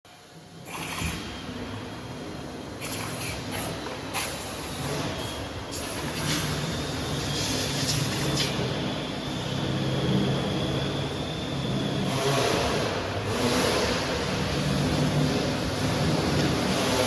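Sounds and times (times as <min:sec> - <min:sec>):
faint high whine: 0:00.1 - 0:13.3.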